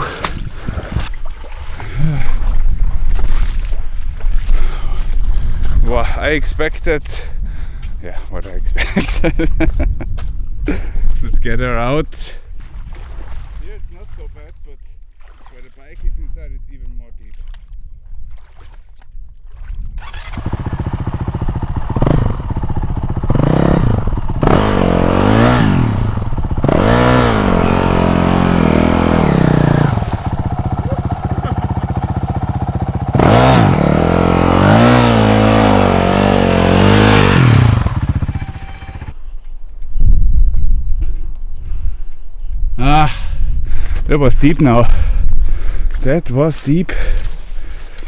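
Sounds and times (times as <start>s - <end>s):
dirt bike engine revving: 20.0s - 39.3s.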